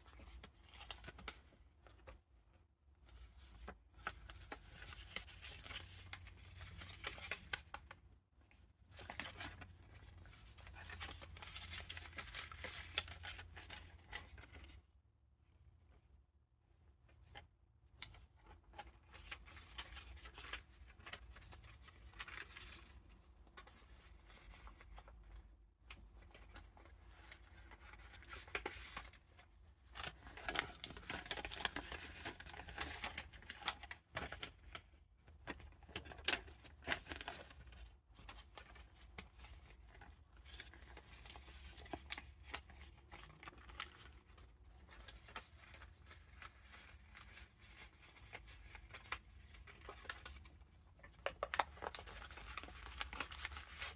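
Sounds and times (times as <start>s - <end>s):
paper pages rustling: 8.8s - 14.8s, 18.1s - 53.9s.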